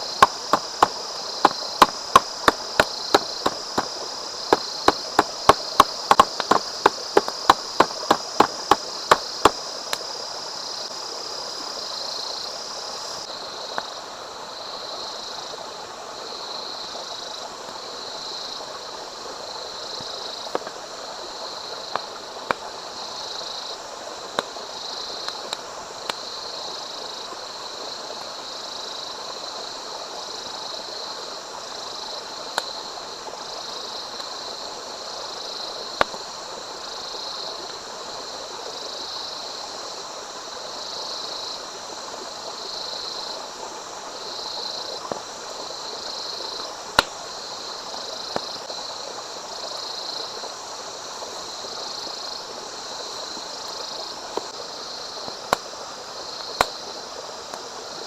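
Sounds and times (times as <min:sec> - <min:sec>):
high insect buzz: 0:00.0 - 0:10.8
single knocks: 0:00.2 - 0:09.6
knife chopping on cutting board: 0:04.5 - 0:09.2.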